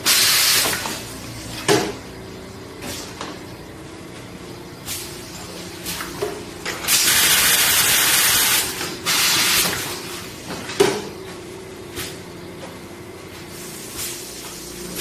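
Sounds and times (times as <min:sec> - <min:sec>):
loud bursts of gas hiss: 0:00.0 - 0:00.8, 0:06.9 - 0:09.8
packaging machine humming: 0:00.0 - 0:15.0.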